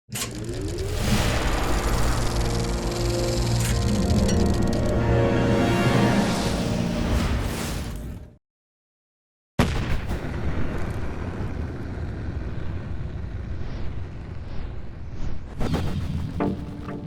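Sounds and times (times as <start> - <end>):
music: 1.0 - 8.4, 15.9 - 17.0.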